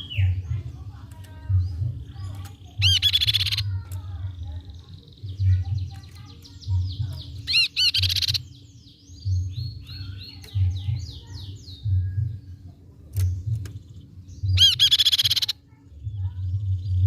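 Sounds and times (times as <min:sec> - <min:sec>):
soft bird chirps: 0:00.0 - 0:17.0
babbler trilled song: 0:02.1 - 0:03.9, 0:05.4 - 0:08.6, 0:14.4 - 0:16.7.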